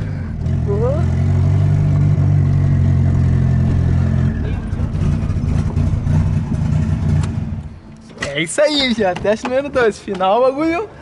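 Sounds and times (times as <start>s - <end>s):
car engine running: 0.0s - 8.0s.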